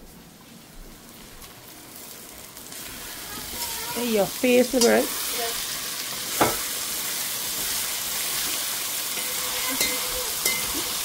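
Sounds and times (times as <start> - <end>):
food sizzling in hot oil: 1.1 - 11.0
spoon knocking against pot: 9.7 - 10.9.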